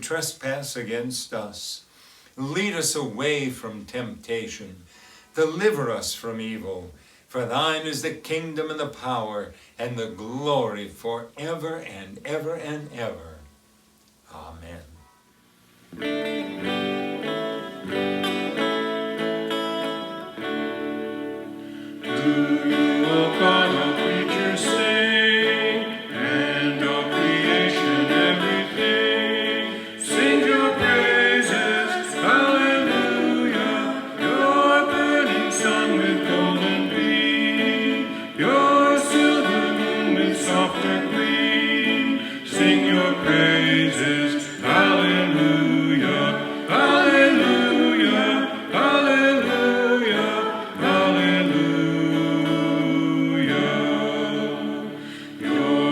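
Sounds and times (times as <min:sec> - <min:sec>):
choir singing with music: 0:16.5 - 0:55.9.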